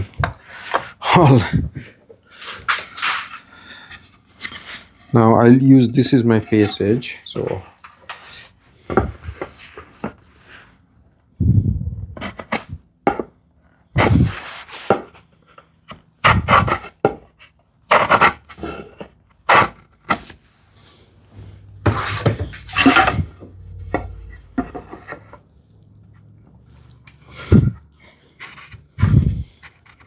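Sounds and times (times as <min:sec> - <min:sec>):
wooden workpieces knocking: 0:00.0 - 0:00.9, 0:08.9 - 0:10.2, 0:13.1 - 0:13.4, 0:21.7 - 0:25.5
wood scraping strokes: 0:02.3 - 0:05.2, 0:05.8 - 0:10.6, 0:20.9 - 0:30.0.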